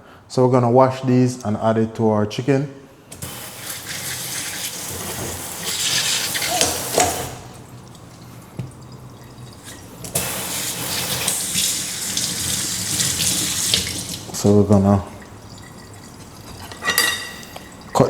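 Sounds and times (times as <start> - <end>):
kitchen tap running: 3.1 - 18.0
rinsing vegetables by hand: 3.2 - 18.0.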